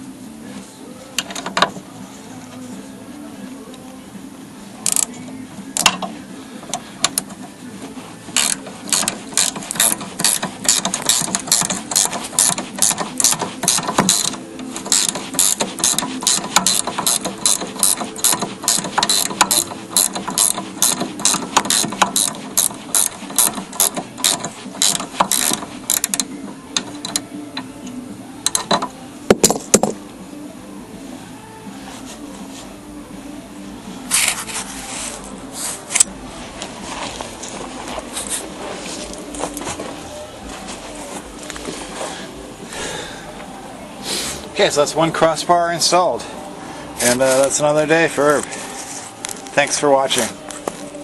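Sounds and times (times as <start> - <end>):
ratchet wrench clicking: 4.9 - 5.1, 5.8 - 6.1, 8.4 - 27.2, 28.4 - 28.9.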